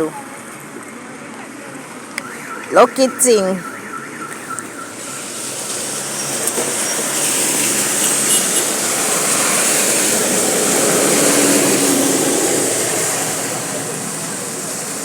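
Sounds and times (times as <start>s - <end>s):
tyres hissing through water: 4.3s - 15.0s.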